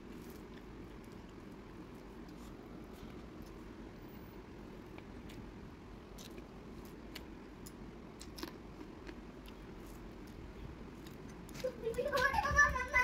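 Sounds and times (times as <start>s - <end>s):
low steady hum: 0.0s - 13.0s
chewing with sharp clicks: 6.1s - 10.4s.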